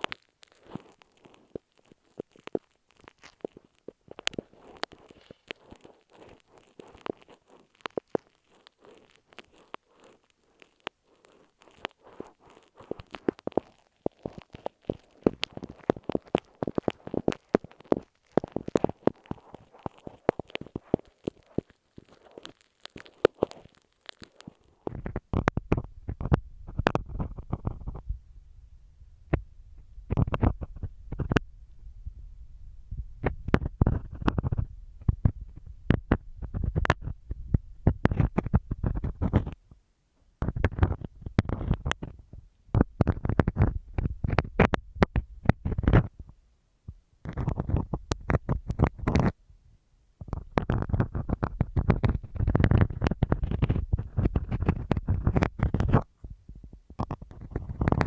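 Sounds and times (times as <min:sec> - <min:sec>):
pins scratching on masking tape: 0:00.0 - 0:28.0, 0:50.3 - 0:56.1.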